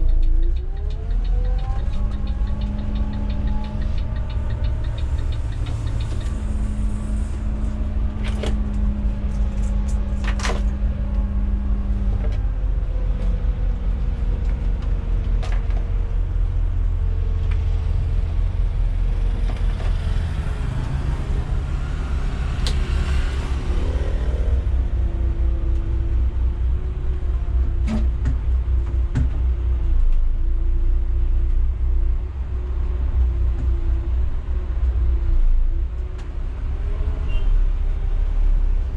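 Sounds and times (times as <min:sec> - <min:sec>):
sharp clicks and rattles: 0:00.0 - 0:07.3
bus engine rumbling: 0:00.0 - 0:38.9.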